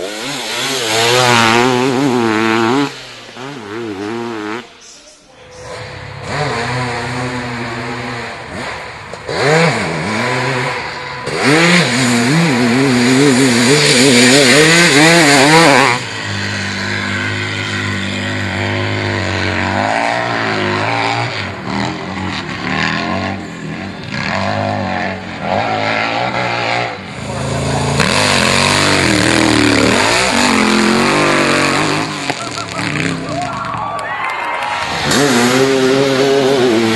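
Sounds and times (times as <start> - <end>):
motorcycle engines revving: 0.0 - 36.9.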